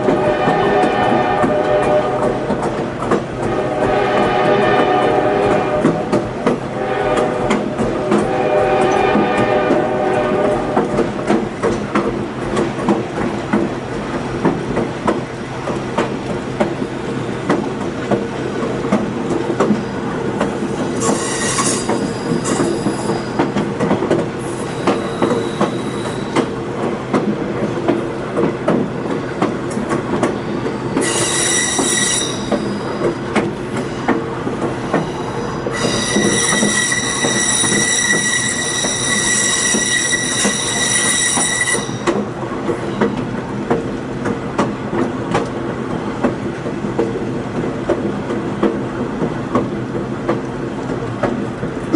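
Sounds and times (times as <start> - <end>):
low train hum: 0.0 - 51.9
train wheels clicking on track: 0.0 - 51.9
wheel flanges squealing: 21.0 - 23.5, 30.5 - 33.1, 35.0 - 42.2.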